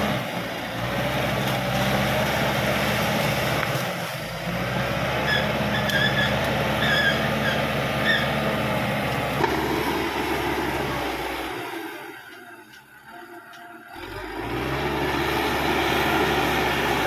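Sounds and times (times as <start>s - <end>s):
bulldozer diesel engine running: 0.0s - 17.0s
short high-pitched squeaks: 5.2s - 8.3s.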